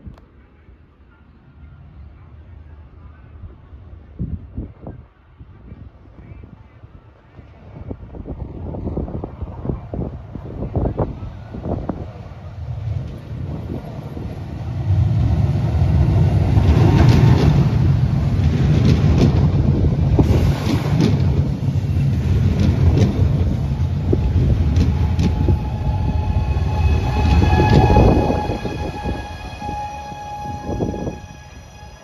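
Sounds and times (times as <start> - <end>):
electric train rumble: 6.6 - 32.0.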